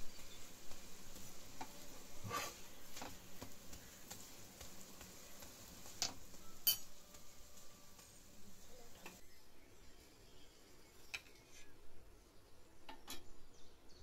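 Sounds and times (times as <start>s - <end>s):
oil sizzling faintly: 0.0s - 13.4s
metal spatula scraping pan: 2.0s - 3.1s.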